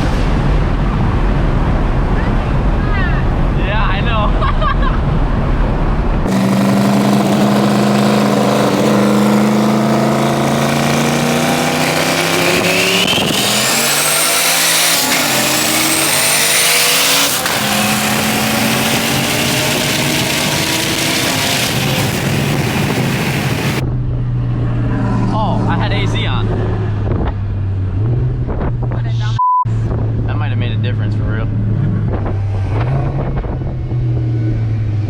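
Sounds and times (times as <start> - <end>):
car engine running hard: 0.0 - 35.0.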